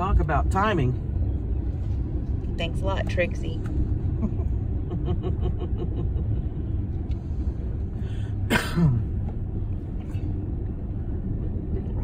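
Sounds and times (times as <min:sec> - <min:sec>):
person coughing: 0:08.4 - 0:09.1.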